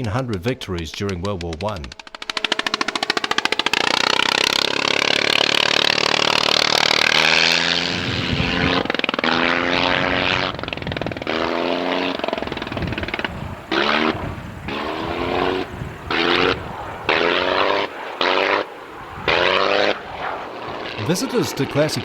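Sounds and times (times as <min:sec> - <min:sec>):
aircraft engine passing: 0:02.2 - 0:22.0.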